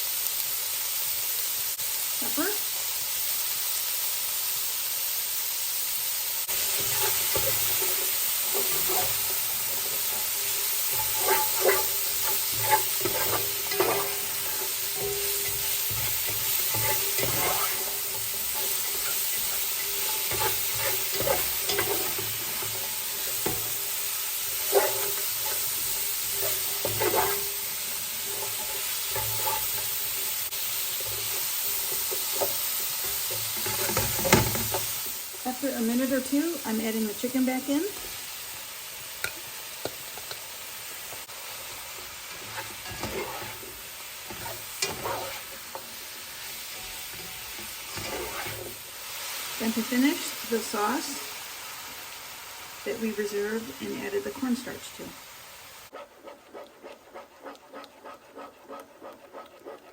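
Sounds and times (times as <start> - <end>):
vegetables sizzling in hot oil: 0.0 - 59.9
spatula scraping and knocking pan: 6.5 - 35.2, 39.2 - 50.4, 55.9 - 59.9.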